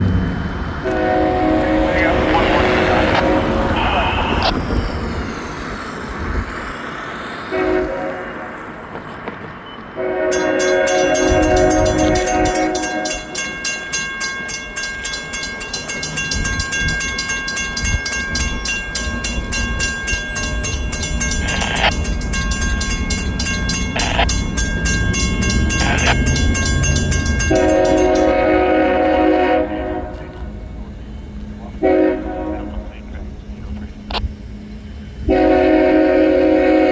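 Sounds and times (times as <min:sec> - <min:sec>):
locomotive rumble: 0:00.0 - 0:36.9
locomotive air horn: 0:00.8 - 0:04.6, 0:07.5 - 0:08.8, 0:10.0 - 0:13.5, 0:20.6 - 0:30.6, 0:31.8 - 0:33.1, 0:35.2 - 0:36.9
crossing bell ringing: 0:00.8 - 0:08.8, 0:10.0 - 0:30.2.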